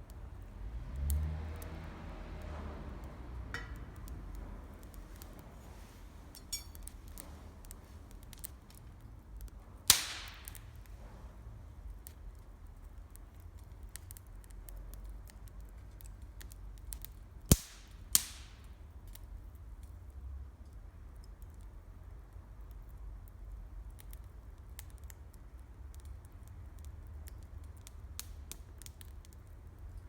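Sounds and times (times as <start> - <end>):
campfire crackling: 0.0 - 30.0
loud sharp fire pops: 9.8 - 11.0, 16.9 - 18.8.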